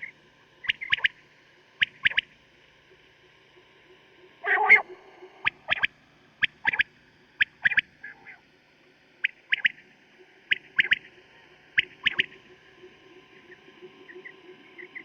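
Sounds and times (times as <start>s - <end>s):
quail calling three-note phrases: 4.4s - 4.8s.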